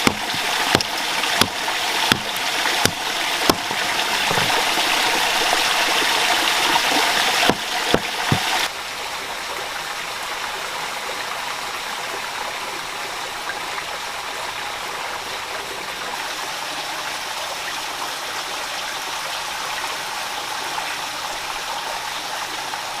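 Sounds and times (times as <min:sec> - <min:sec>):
sharp knocks: 0:00.0 - 0:04.7, 0:07.4 - 0:08.7
water rushing in a stream: 0:00.0 - 0:23.0.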